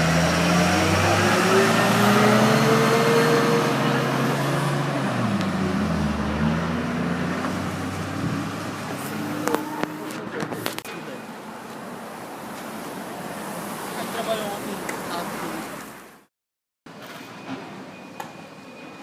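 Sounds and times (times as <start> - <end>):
vehicle engine: 0.0 - 11.2
road noise: 0.0 - 16.3.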